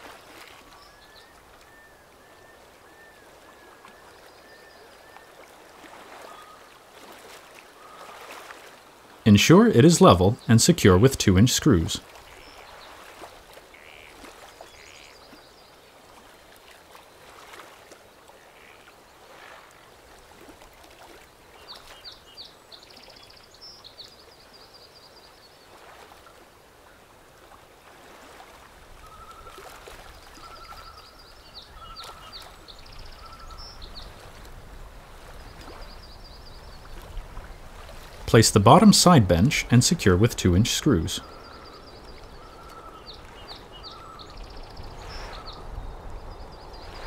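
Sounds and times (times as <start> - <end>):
outdoor background hiss: 4.3 - 17.4, 30.4 - 47.0
small birds chirping: 9.8 - 17.3, 21.1 - 25.9, 29.0 - 47.0
lower whistled bird notes: 29.0 - 29.6, 30.4 - 34.1, 40.8 - 47.0.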